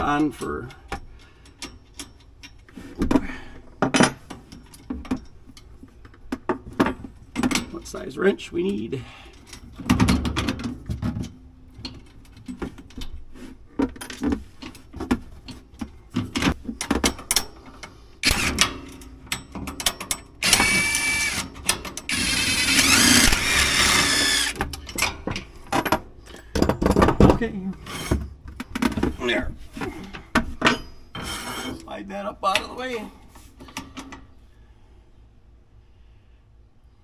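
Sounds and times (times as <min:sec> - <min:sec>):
metal clinks and knocks: 0:00.8 - 0:02.7, 0:03.8 - 0:07.9, 0:30.1 - 0:31.8.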